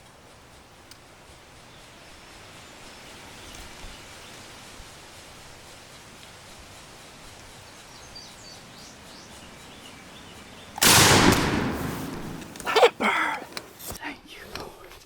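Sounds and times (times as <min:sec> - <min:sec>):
faint bird chirps: 0:06.5 - 0:10.8
shotgun shot with echo: 0:10.8 - 0:12.5.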